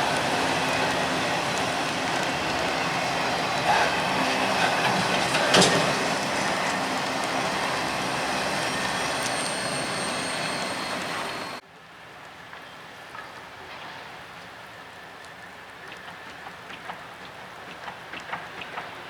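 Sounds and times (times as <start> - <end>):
freight cars rolling on rails: 0.0 - 11.6.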